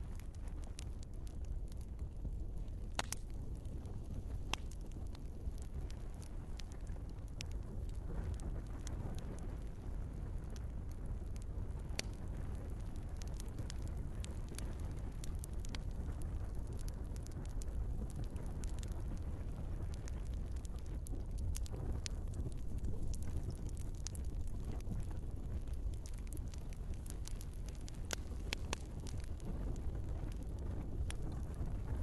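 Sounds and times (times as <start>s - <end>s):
burning logs crackling and popping: 0.0s - 32.0s
fire flames rumbling: 0.0s - 32.0s.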